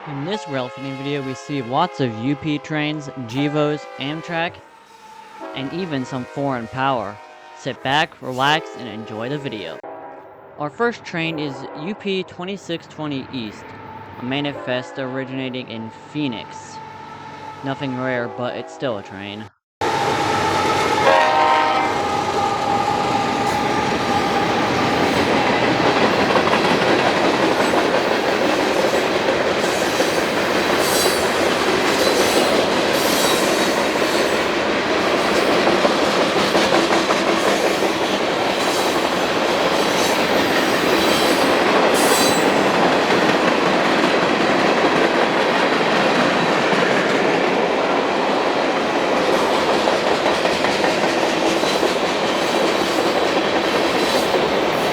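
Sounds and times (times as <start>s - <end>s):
train horn: 0.0s - 10.7s, 11.3s - 43.6s
steel wheels rumbling on rails: 19.8s - 54.9s.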